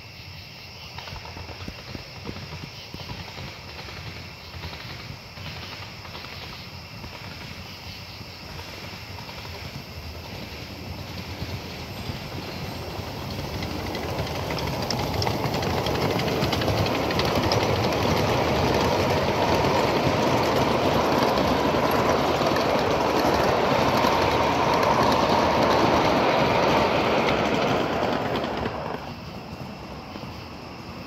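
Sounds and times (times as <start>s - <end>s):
steam train rolling on rails: 0.8s - 31.0s.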